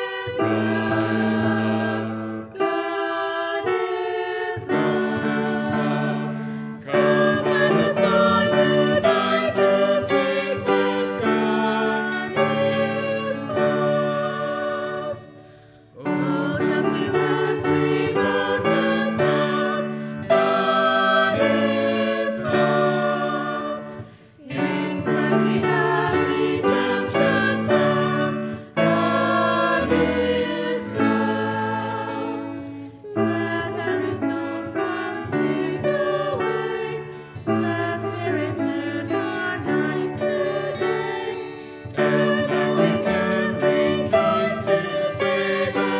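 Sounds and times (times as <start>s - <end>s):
group singing a hymn: 0.0s - 45.9s
guitar accompaniment: 0.0s - 45.9s
piano accompaniment: 0.0s - 45.9s.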